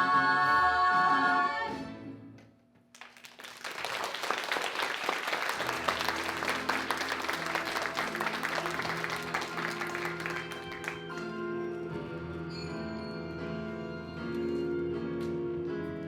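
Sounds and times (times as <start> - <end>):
audience applauding: 3.0 - 11.5.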